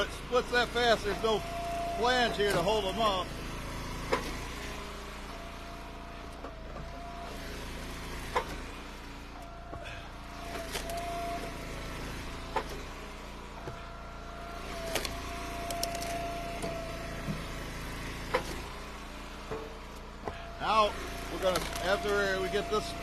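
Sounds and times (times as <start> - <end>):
hydraulic whine under load: 0.0 - 23.0
wood splitter engine running: 0.0 - 23.0
sharp knocks of splitting wood: 4.0 - 4.6, 6.4 - 8.9, 9.7 - 12.9, 14.8 - 18.8, 19.4 - 20.5.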